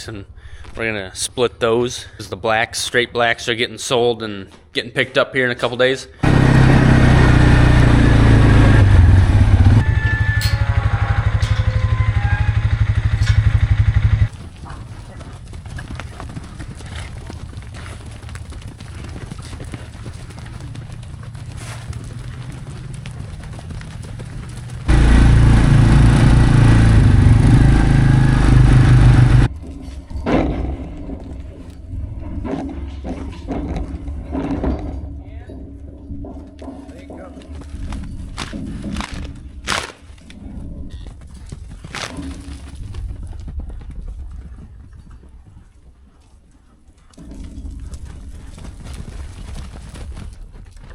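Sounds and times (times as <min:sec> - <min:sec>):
engine running loudly: 0:06.2 - 0:14.3, 0:24.8 - 0:29.5.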